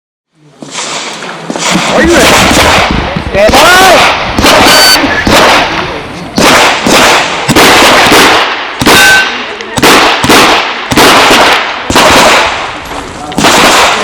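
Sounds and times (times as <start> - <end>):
revolver gunshots with echo: 0.6 - 14.0.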